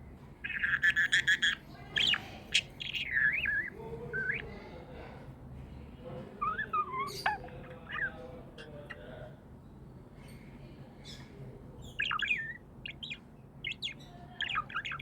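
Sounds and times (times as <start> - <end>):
budgies chirping and warbling: 0.4 - 4.8, 6.4 - 9.2, 11.1 - 15.0.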